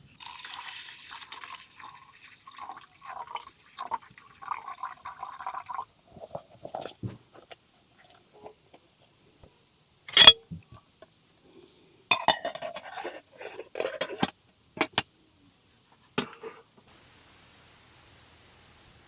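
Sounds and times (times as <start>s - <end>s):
faint steady hiss: 0.0s - 19.0s
metal cookware clanking: 10.1s - 10.4s, 12.1s - 15.0s.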